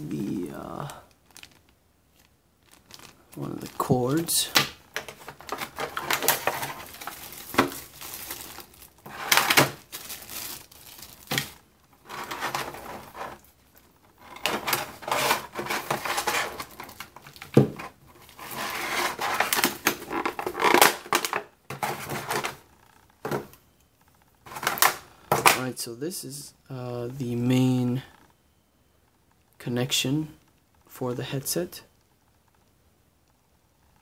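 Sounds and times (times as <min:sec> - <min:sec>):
plastic packaging crinkling: 0:00.4 - 0:22.7.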